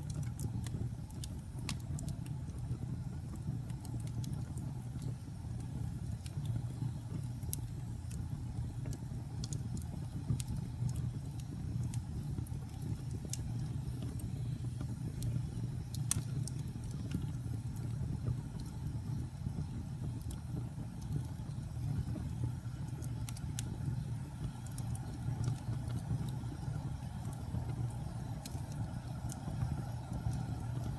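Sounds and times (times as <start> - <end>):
fire crackles and pops: 0.0 - 30.9
low rumble of flames: 0.0 - 30.9.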